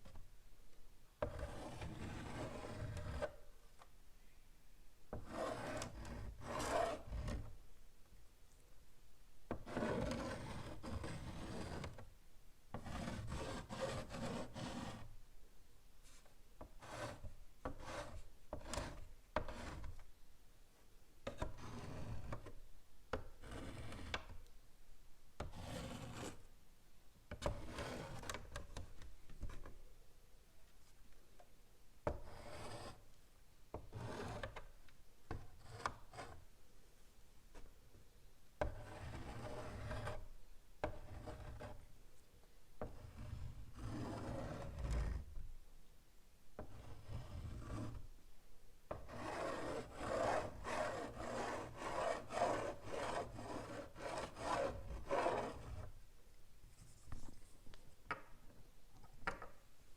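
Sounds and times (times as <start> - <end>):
chalk scratching on blackboard: 1.2 - 3.5, 5.1 - 7.6, 9.5 - 12.1, 12.7 - 15.1, 16.0 - 20.0, 21.2 - 24.4, 25.4 - 26.5, 27.4 - 29.8, 32.1 - 33.0, 33.7 - 34.7, 35.3 - 36.5, 38.6 - 41.9, 42.8 - 45.3, 46.6 - 48.1, 48.9 - 56.0
chalk tapping: 16.0 - 20.0, 32.0 - 33.0, 48.9 - 55.9.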